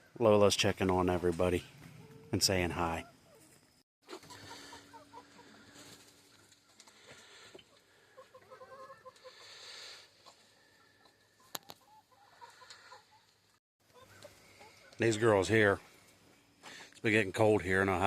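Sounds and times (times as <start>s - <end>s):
hens clucking softly: 1.8s - 15.0s.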